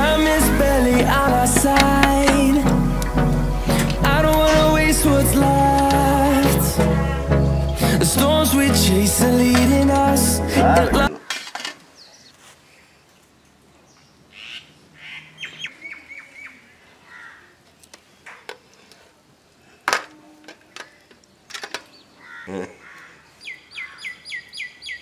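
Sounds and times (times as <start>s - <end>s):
birds chirping: 0.0s - 11.3s, 20.9s - 25.0s.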